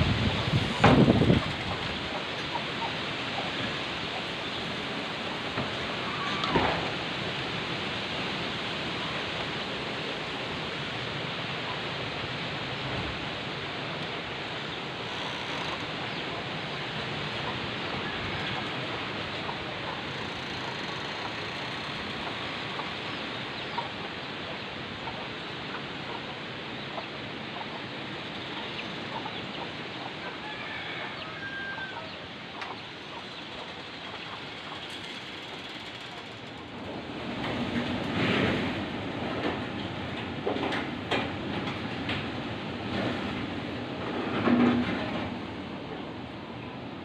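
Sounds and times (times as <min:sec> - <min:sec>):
strong wind blowing: 0:00.0 - 0:15.0.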